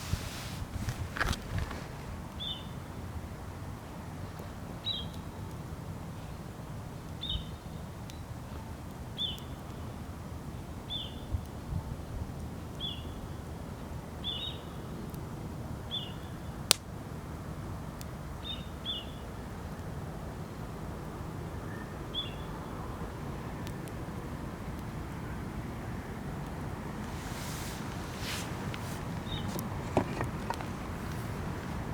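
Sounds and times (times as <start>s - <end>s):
outdoor background noise: 0.0s - 31.9s
bird chirping: 27.2s - 31.9s.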